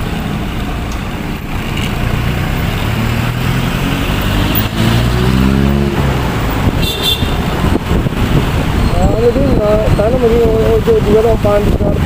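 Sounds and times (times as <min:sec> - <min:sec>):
motorcycle engine accelerating: 0:02.0 - 0:09.1
wind rushing over microphone: 0:03.3 - 0:12.0.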